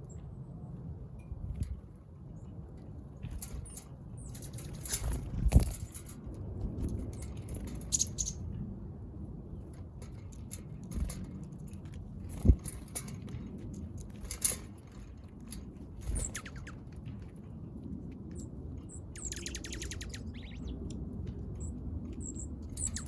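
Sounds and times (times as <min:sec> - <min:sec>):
birds pecking and tapping: 0:02.7 - 0:08.8, 0:09.6 - 0:23.0
high bird chirps: 0:07.9 - 0:08.4, 0:16.1 - 0:16.8, 0:18.9 - 0:20.8, 0:22.2 - 0:23.0.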